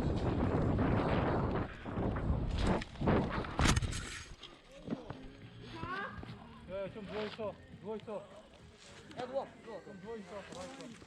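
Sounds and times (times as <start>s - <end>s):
wind rushing over microphone: 0.0s - 4.3s
bike tyres rolling over dirt: 0.0s - 5.4s.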